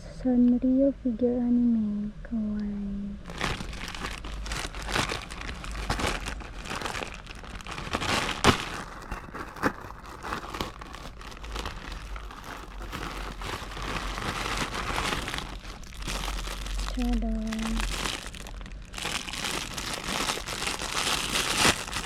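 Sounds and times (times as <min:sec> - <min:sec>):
packaging crinkling and rustling: 0:03.2 - 0:22.0.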